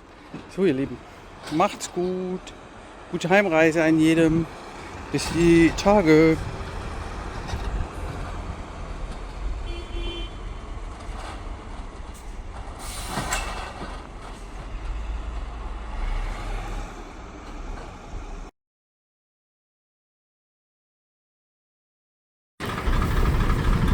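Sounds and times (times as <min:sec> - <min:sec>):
heavy truck engine rumbling: 0:00.0 - 0:18.5, 0:22.6 - 0:23.9
truck horn toot: 0:09.6 - 0:10.5
brief air hiss: 0:12.8 - 0:13.6.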